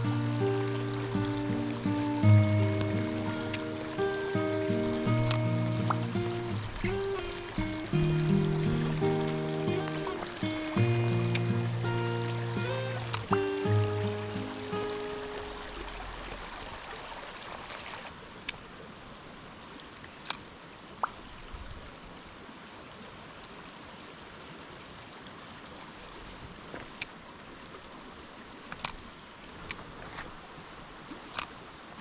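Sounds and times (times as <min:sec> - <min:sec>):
mountain stream flowing: 0:00.0 - 0:32.0
sharp ticks: 0:05.0 - 0:09.0.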